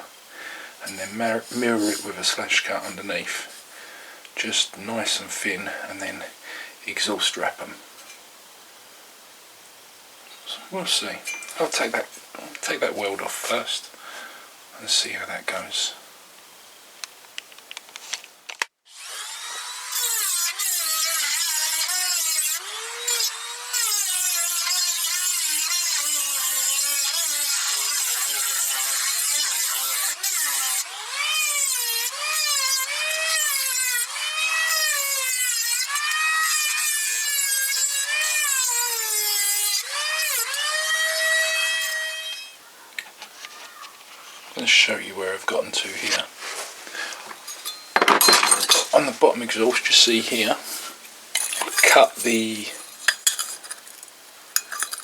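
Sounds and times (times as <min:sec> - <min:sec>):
angle grinder cutting metal: 0:00.8 - 0:03.6, 0:18.9 - 0:42.6, 0:44.5 - 0:54.0.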